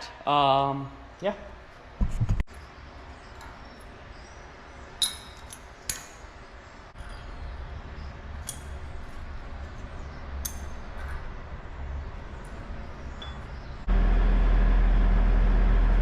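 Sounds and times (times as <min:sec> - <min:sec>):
low hum: 0:02.5 - 0:16.0
steel pieces clinking: 0:05.0 - 0:06.4, 0:08.3 - 0:11.3.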